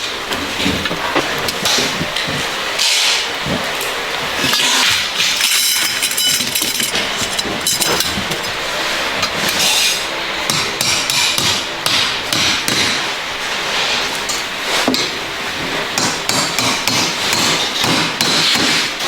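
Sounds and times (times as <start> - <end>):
hammer striking metal: 9.6 - 13.0.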